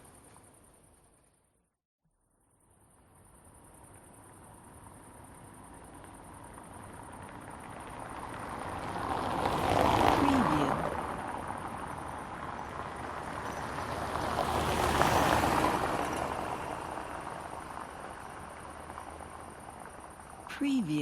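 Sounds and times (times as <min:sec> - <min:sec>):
crickets chirping: 0:02.4 - 0:21.0
cars passing by: 0:05.3 - 0:21.0.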